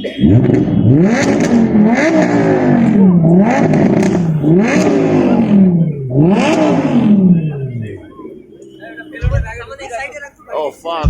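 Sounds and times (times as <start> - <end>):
engine revving: 0.0 - 8.6.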